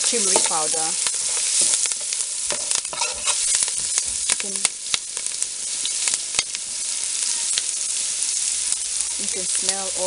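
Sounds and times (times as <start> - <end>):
food sizzling in hot oil: 0.0 - 10.0
metal ladle stirring in pot: 2.5 - 3.6.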